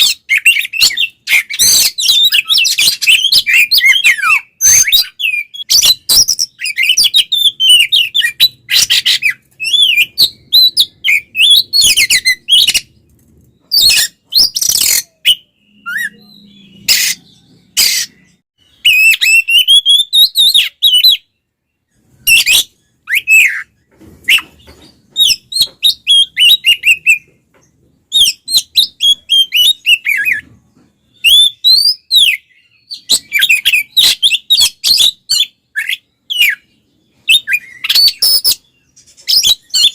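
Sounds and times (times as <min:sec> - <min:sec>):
bird harsh rasping calls: 0:00.0 - 0:13.0, 0:13.6 - 0:21.3
bird whistling song: 0:00.0 - 0:27.4, 0:28.0 - 0:39.9.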